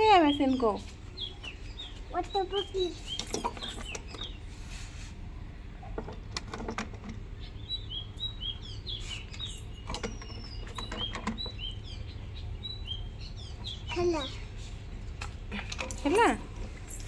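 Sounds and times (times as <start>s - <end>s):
small birds chirping: 0.0s - 5.1s, 7.0s - 17.0s.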